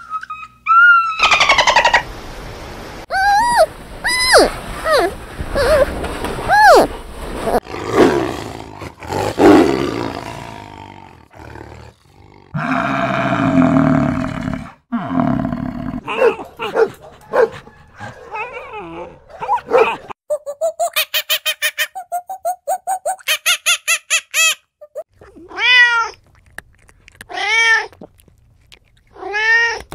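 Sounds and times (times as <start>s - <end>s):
animal growls: 7.6s - 16.2s.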